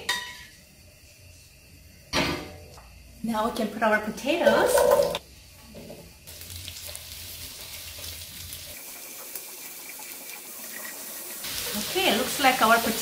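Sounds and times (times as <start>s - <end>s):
potatoes sizzling in hot oil: 6.2s - 13.0s.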